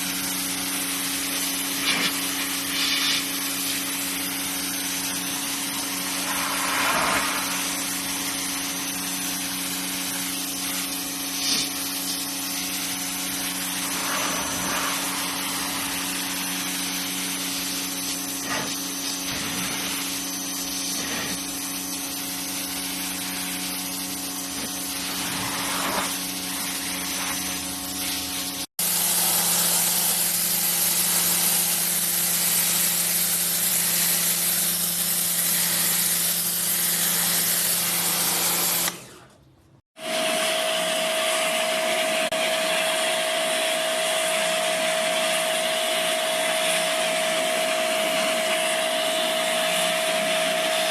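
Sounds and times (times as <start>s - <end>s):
pressure washer water jet hissing: 0.0s - 39.1s.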